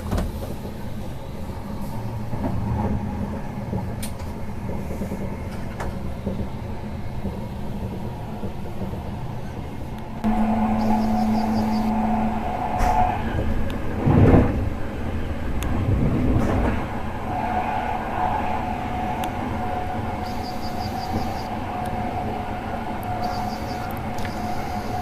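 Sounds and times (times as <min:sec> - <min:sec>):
passenger train running on rails: 0:00.0 - 0:25.0
thin steady whine: 0:10.2 - 0:13.9, 0:17.3 - 0:25.0.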